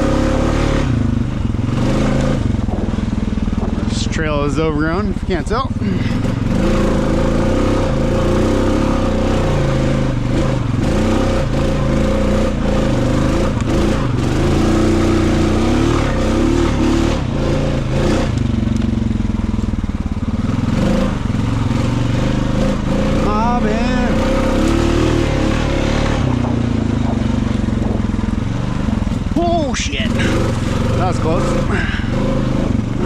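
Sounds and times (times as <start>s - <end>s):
atv engine revving: 0.0s - 33.0s
knocks and clatter: 2.1s - 4.1s, 25.9s - 29.4s.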